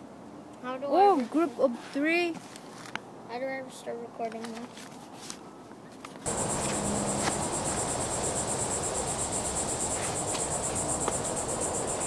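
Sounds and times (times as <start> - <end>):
background hiss: 6.3 - 12.0
insects trilling: 6.3 - 12.0.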